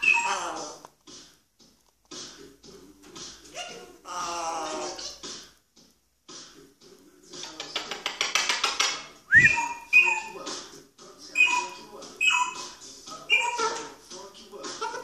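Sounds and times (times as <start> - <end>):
parrot mimicking electronic beeps: 0.0 - 0.8, 9.3 - 10.4, 11.4 - 13.8
parrot chattering: 0.0 - 0.9, 3.4 - 5.4, 7.4 - 10.5, 11.3 - 14.0
parrot rising whistle: 9.3 - 10.3.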